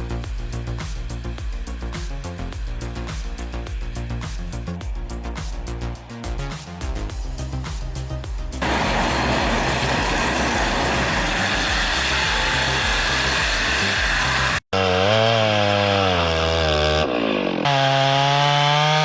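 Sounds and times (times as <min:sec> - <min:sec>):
chainsaw cutting through wood: 0:08.6 - 0:19.0
engine running with wavering pitch: 0:08.6 - 0:19.0.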